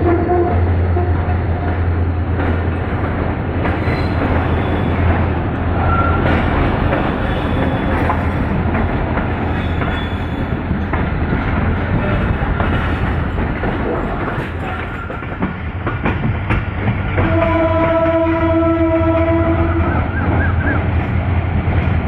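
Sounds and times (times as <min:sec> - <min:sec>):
train rumbling on rails: 0:00.0 - 0:22.0
wheels clacking over rail joints: 0:01.5 - 0:18.8.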